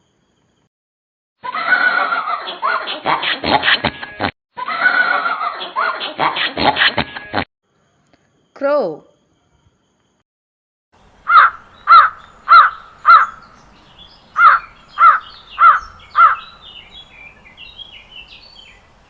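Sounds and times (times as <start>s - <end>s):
crow cawing: 11.2s - 13.6s, 14.4s - 16.8s.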